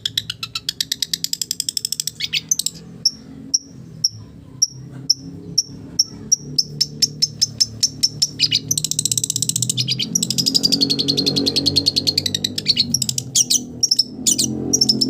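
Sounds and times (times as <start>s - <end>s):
bird singing high notes: 5.1s - 15.0s.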